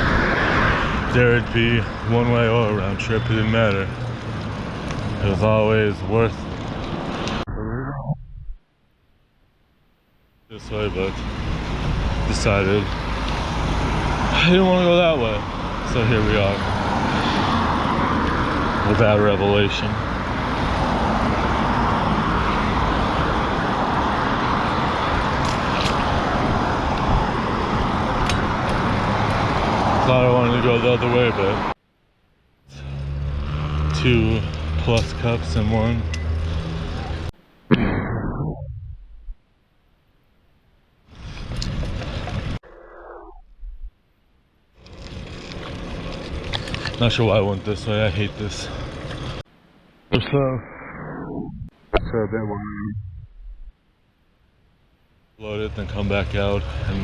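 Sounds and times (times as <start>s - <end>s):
rushing wind from riding a bike: 0.0s - 1.6s, 41.1s - 44.0s
rushing wind and road noise: 0.0s - 7.5s, 10.7s - 31.8s, 41.0s - 44.0s, 44.8s - 49.9s.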